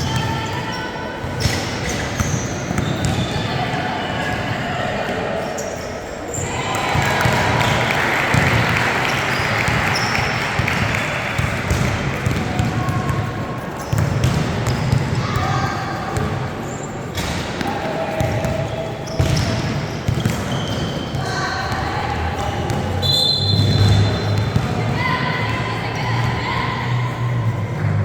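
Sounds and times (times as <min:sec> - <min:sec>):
basketball bouncing on court: 0:00.0 - 0:03.5, 0:06.7 - 0:26.4
crowd voices and shouts: 0:00.0 - 0:28.0.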